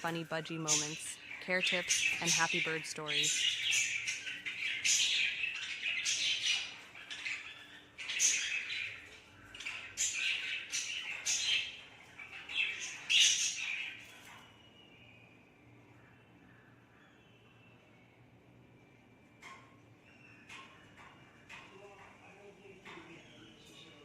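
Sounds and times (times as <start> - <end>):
budgie chirping and squawking: 0.6 - 14.1.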